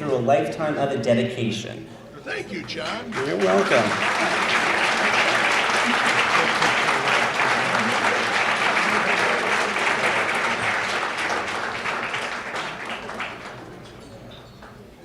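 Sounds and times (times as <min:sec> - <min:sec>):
large audience applauding: 0:02.6 - 0:14.0.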